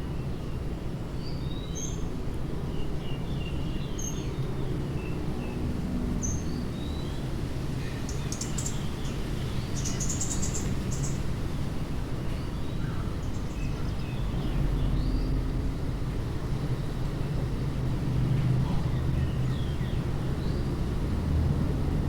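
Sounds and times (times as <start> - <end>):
small birds chirping: 7.8 - 11.4, 12.3 - 15.4, 18.4 - 20.8.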